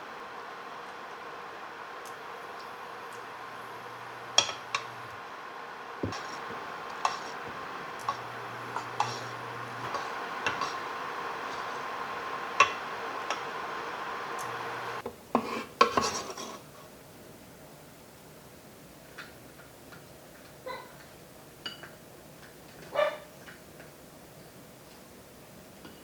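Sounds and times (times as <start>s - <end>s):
steady background hum: 0.0s - 15.3s
dishes and utensils clinking: 4.3s - 5.0s, 6.0s - 11.8s, 12.5s - 13.5s.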